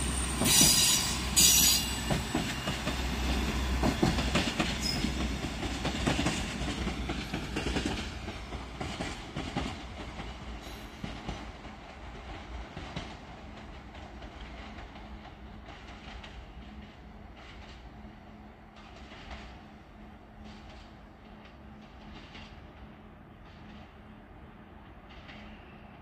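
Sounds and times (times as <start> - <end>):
railcar low rumble: 0.0 - 26.0
railcar wheels clattering: 0.0 - 26.0.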